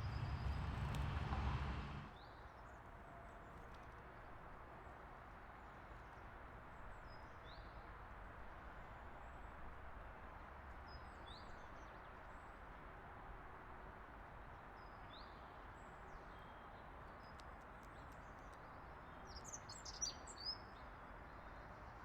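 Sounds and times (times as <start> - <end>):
low background rumble: 0.0 - 2.1.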